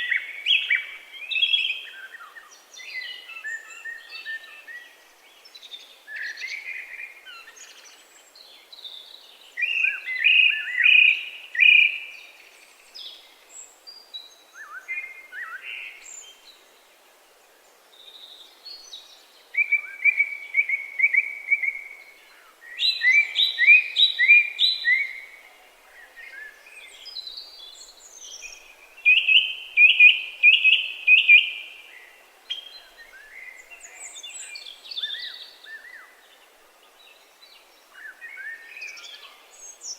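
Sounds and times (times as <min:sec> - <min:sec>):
faint steady hiss: 0:00.0 - 0:39.9
songbirds singing: 0:00.0 - 0:39.9.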